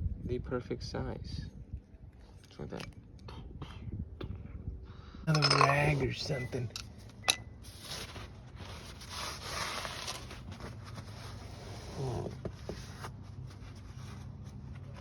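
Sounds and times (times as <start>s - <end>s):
cloth rag rustling and rubbing: 7.7s - 15.0s.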